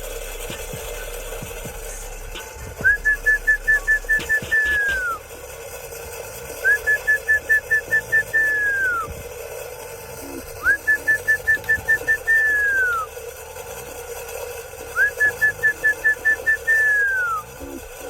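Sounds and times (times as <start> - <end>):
whistled pigeon feed call: 2.4 - 5.3, 6.5 - 13.3, 14.8 - 18.0.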